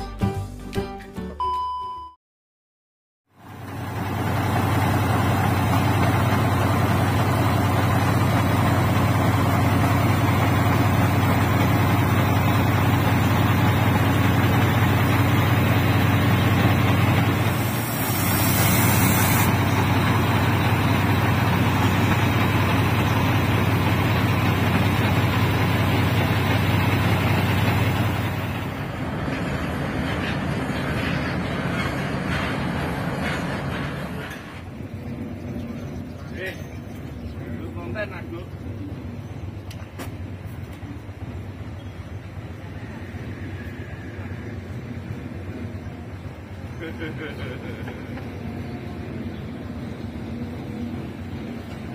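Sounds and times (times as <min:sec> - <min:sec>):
diesel engine running: 0:03.4 - 0:51.9
hiss: 0:17.4 - 0:19.7.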